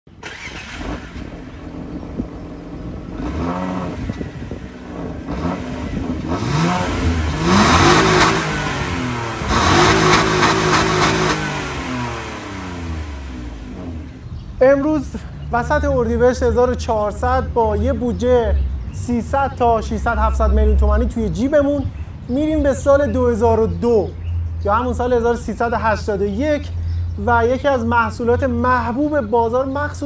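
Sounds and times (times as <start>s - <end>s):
car engine revving: 0.2s - 14.4s.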